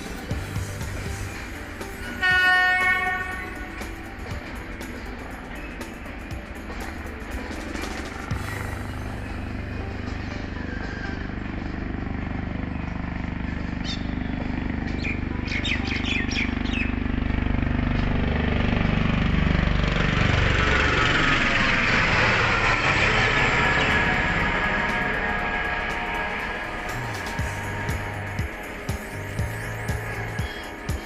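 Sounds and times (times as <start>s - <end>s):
wheels hissing on rail: 0.0s - 15.2s, 18.7s - 31.0s
train rumble and hum: 0.0s - 31.0s
bird chirps: 13.8s - 14.2s, 14.9s - 16.9s.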